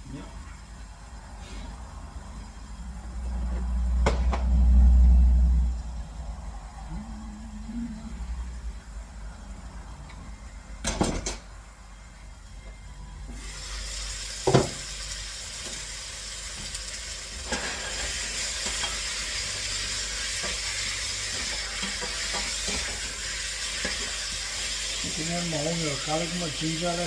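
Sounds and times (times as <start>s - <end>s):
food sizzling in hot oil: 13.3s - 27.0s.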